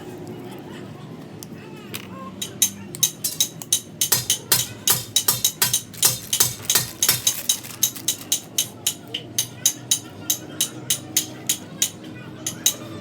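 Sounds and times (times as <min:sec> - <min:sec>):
rapid sharp knocks: 0:02.4 - 0:12.8.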